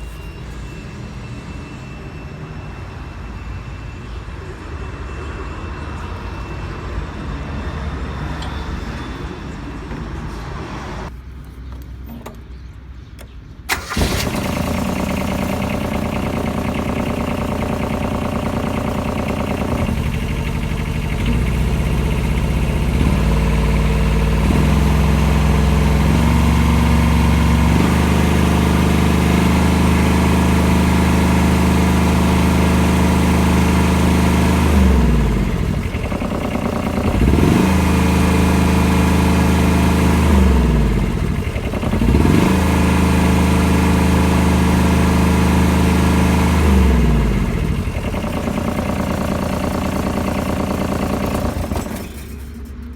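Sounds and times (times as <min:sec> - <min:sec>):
diesel engine revving and idling: 0:13.7 - 0:52.9.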